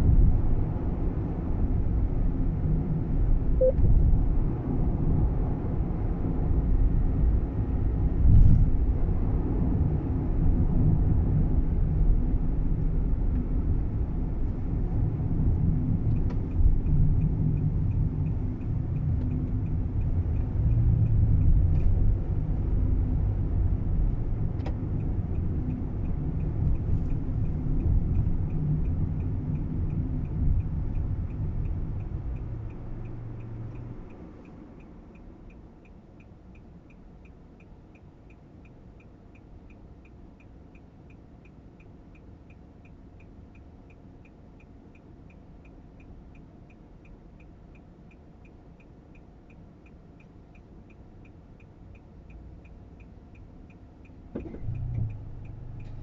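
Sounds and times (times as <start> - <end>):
road rumble: 0.0 - 56.0
light regular ticking: 14.5 - 56.0.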